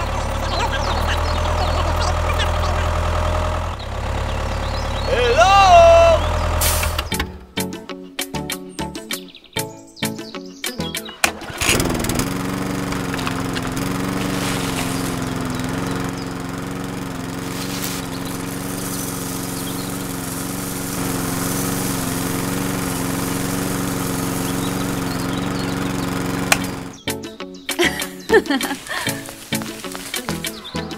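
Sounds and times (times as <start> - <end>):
small motor humming: 0.0 - 5.2, 11.4 - 27.0.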